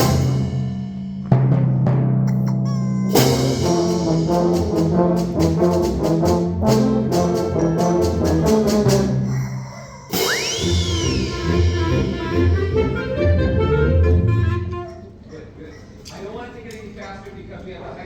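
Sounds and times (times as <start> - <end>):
wind band playing a galop: 0.0 - 0.5, 3.2 - 9.3, 10.2 - 15.2
rubber chicken squeal: 9.3 - 11.9.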